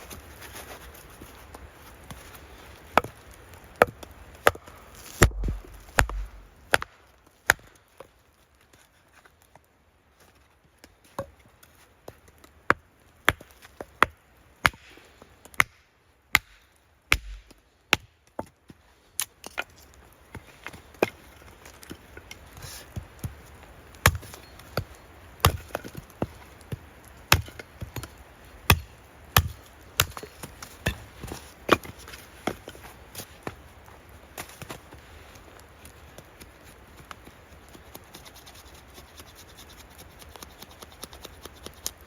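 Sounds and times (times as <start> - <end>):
wood being chopped: 3.8 - 7.8, 16.4 - 18.5, 24.0 - 28.1, 28.7 - 32.6.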